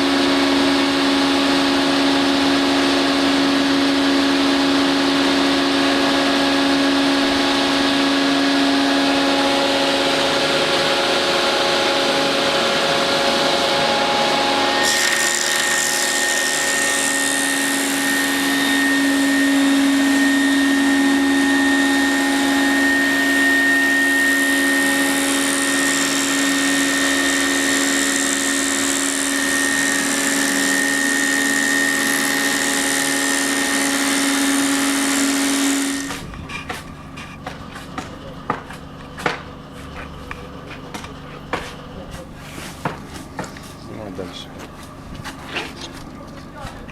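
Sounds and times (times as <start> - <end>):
high saw whine: 0.0 - 37.3
circular saw blades humming: 0.0 - 46.9.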